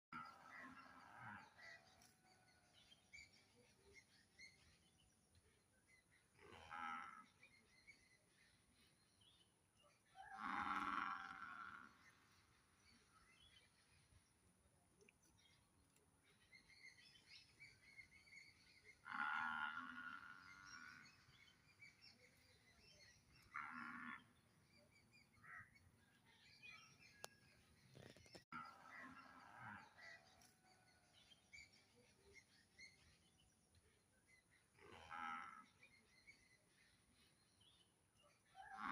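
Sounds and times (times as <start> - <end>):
cow mooing: 10.3 - 12.0, 34.8 - 35.7.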